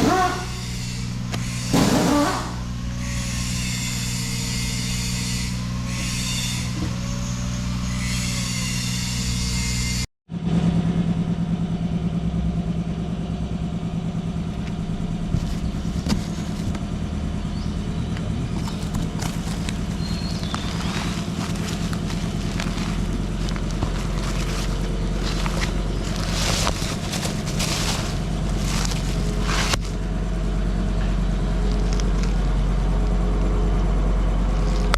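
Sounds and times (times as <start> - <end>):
excavator diesel engine running: 10.4 - 34.9.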